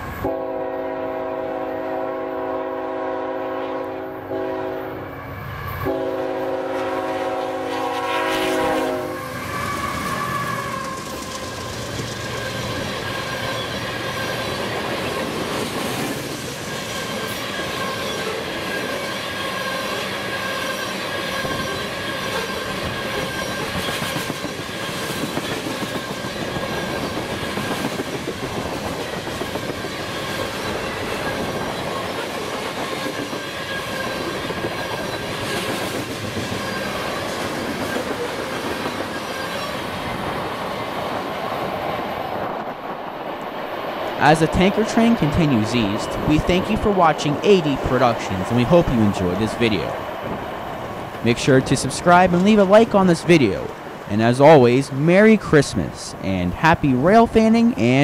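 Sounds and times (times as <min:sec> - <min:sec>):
high-pitched wheel squeal: 0:09.2 - 0:11.2, 0:16.7 - 0:24.0.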